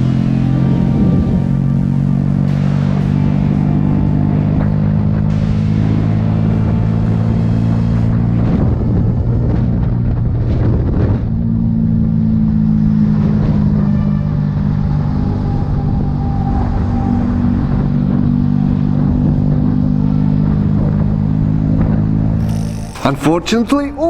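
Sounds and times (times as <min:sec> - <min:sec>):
vehicle engine humming: 0:00.0 - 0:10.4.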